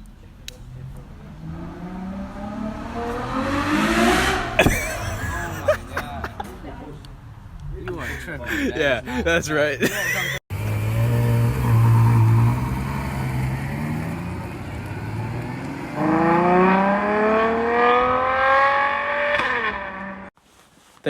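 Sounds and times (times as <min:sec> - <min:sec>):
car engine revving: 0:00.7 - 0:06.0, 0:10.5 - 0:20.3.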